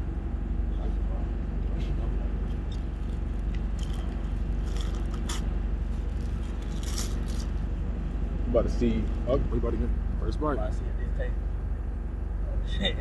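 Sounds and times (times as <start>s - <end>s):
low hum: 0.0s - 13.0s
food packaging rustling and crinkling: 3.0s - 7.6s.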